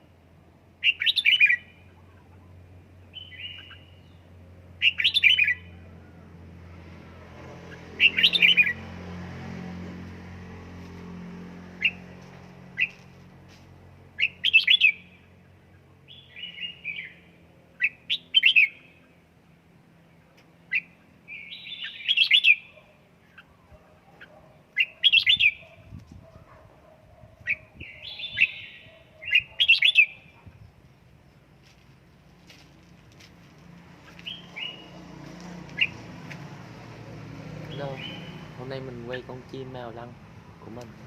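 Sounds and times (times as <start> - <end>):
bird chirping and warbling: 0.8 - 5.8, 7.5 - 8.9, 11.7 - 12.1, 14.2 - 19.2, 20.6 - 26.3, 27.2 - 31.0, 34.0 - 35.0, 35.7 - 36.1, 37.7 - 39.7.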